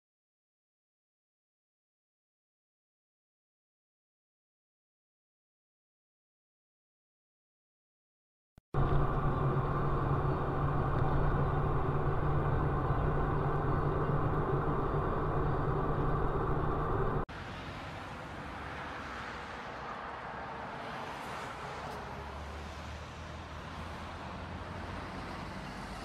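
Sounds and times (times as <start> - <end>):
hissy road noise: 8.8 - 26.0
vehicle engine and road noise: 8.8 - 26.0.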